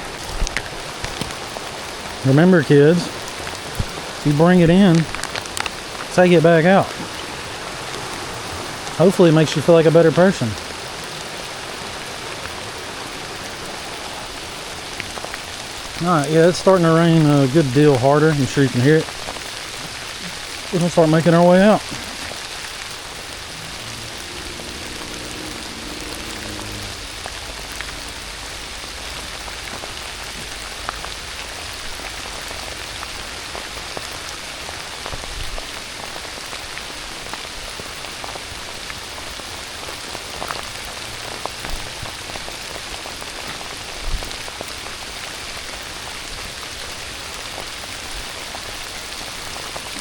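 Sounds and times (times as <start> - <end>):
heavy rain falling: 0.0 - 50.0.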